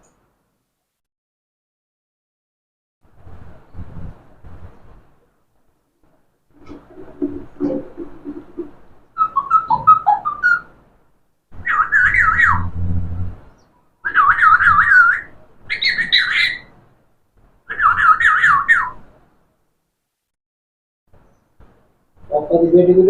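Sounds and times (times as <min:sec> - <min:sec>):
parrot whistling: 0:09.2 - 0:10.7, 0:14.0 - 0:16.7.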